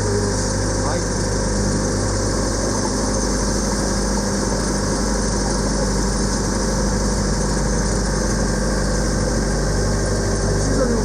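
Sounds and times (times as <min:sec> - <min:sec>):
motorboat engine running: 0:00.0 - 0:11.0.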